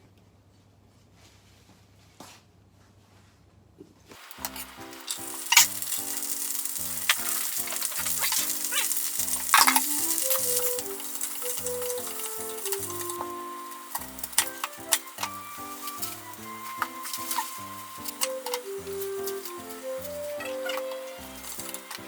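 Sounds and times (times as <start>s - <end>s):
food sizzling in hot oil: 4.2s - 22.0s
stirring scrape and clatter: 4.4s - 20.2s.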